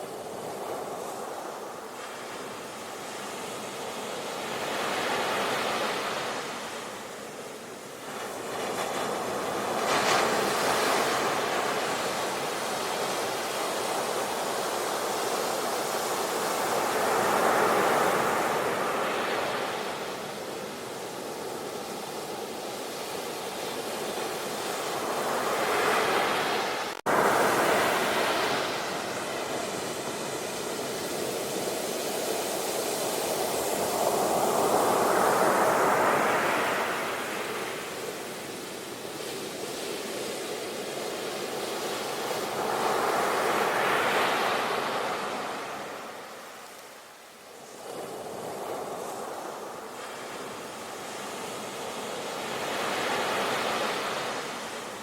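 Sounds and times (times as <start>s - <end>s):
ocean waves breaking on shore: 0.0s - 55.0s.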